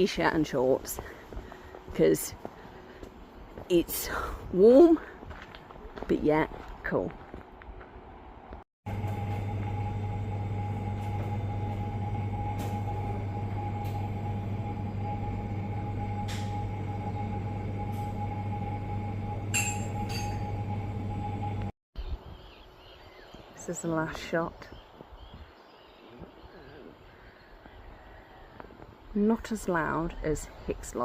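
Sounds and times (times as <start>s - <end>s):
mechanical hum with whine: 8.9s - 21.7s.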